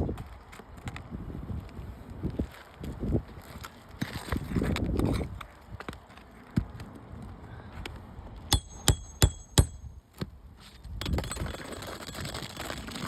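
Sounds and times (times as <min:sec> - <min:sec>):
hammer striking metal: 0:08.5 - 0:09.9.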